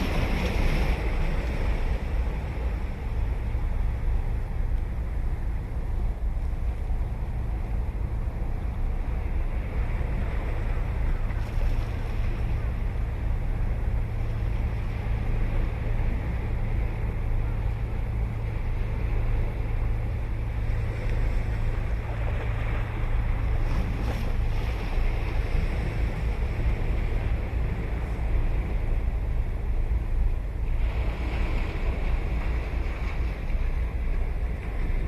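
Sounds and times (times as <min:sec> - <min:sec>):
low rumble: 0:00.0 - 0:35.0
ocean surf washing onto beach: 0:00.0 - 0:35.0.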